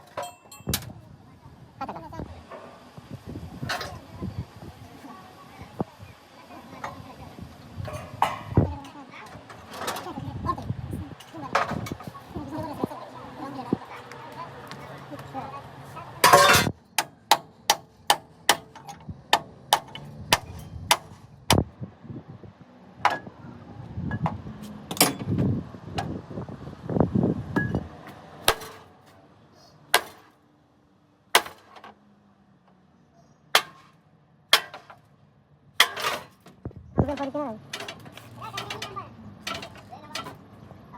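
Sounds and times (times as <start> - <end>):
hammer striking metal: 24.9 - 25.3, 33.5 - 33.9, 34.5 - 35.0.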